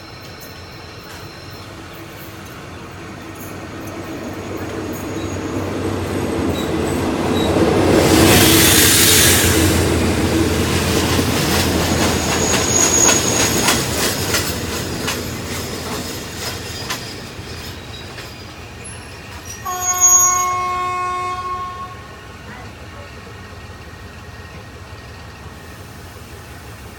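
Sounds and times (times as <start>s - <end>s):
wheel squeal: 0.0s - 2.4s, 11.9s - 14.0s
train wheels clicking over rail joints: 0.1s - 19.6s
locomotive horn blast: 19.6s - 22.2s.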